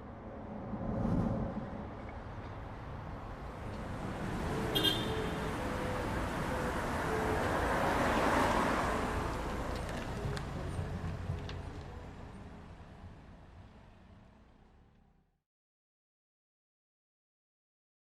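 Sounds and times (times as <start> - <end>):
vehicle passing: 3.5 - 11.5.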